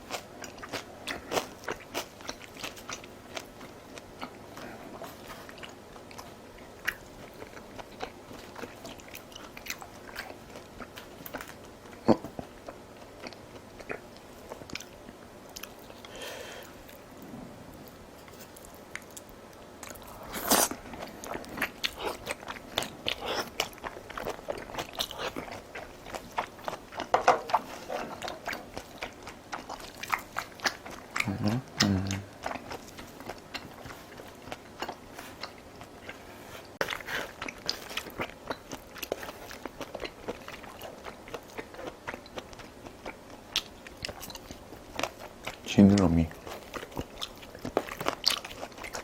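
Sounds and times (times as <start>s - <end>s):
person chewing and biting food: 17.8s - 45.6s, 46.3s - 49.0s.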